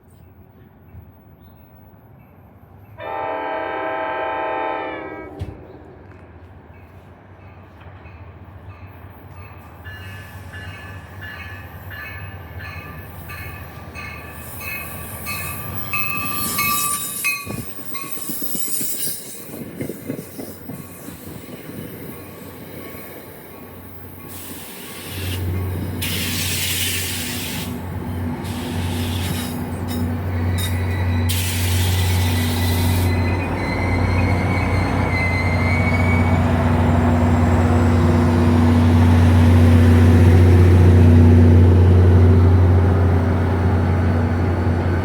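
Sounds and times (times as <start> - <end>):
train wheels squealing: 8.7 - 27.8, 28.4 - 38.0.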